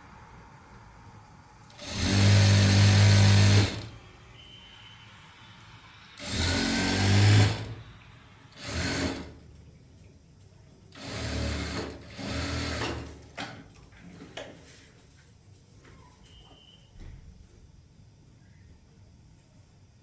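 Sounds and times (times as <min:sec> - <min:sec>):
sewing machine running: 0:01.6 - 0:04.0, 0:06.2 - 0:09.4, 0:10.9 - 0:13.2.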